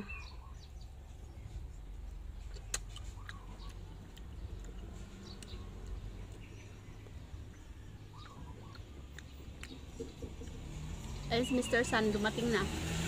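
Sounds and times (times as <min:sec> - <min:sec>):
low steady rumble: 0:00.0 - 0:12.6
chewing and sucking mouth sounds: 0:01.0 - 0:11.2
chickens clucking: 0:07.4 - 0:10.7.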